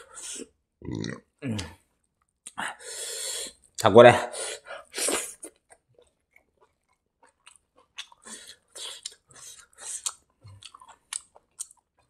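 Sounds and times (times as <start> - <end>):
wet chewing: 5.1 - 12.0
faint mouth clicks: 7.5 - 11.8.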